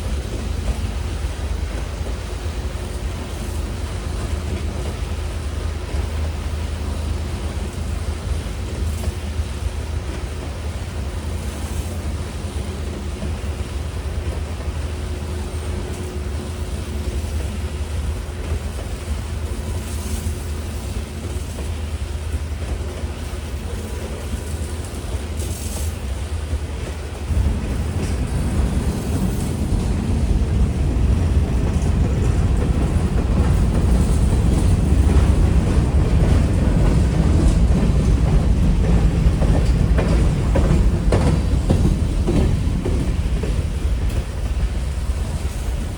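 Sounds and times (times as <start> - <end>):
diesel locomotive engine rumble: 0.0 - 45.9.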